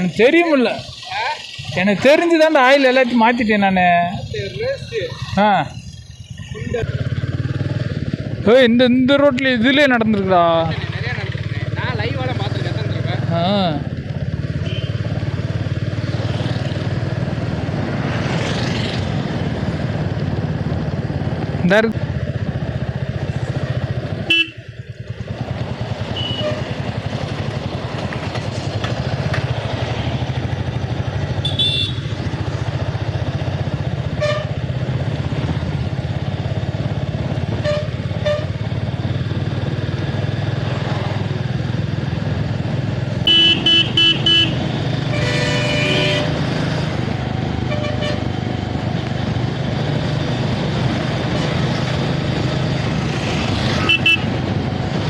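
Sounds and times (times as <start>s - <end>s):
motorcycle running: 0.0s - 55.0s
vehicle horn short beeps: 26.2s - 26.7s, 31.4s - 32.0s.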